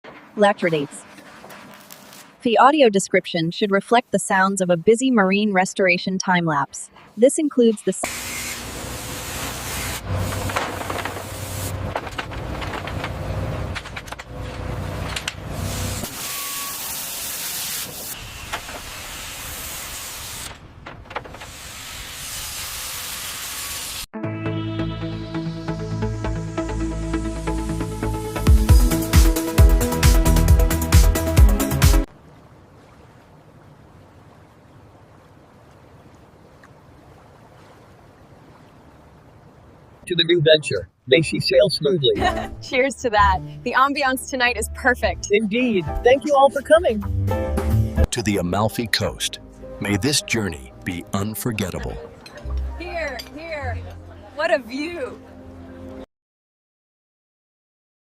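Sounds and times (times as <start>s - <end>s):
spraying hiss: 8.1s - 10.5s, 15.6s - 20.5s, 21.5s - 24.1s.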